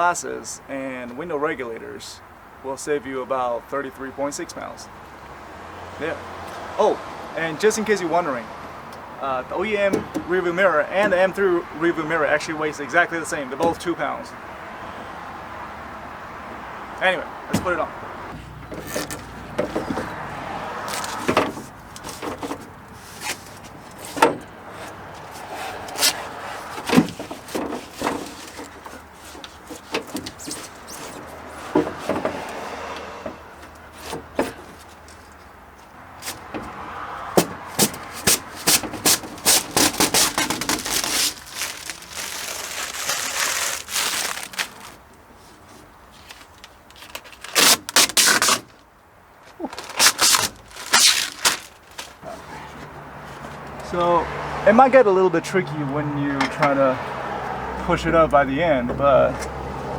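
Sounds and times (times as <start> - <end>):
parts scraping: 17.0 - 53.7
knocks on car door parts: 37.4 - 39.1.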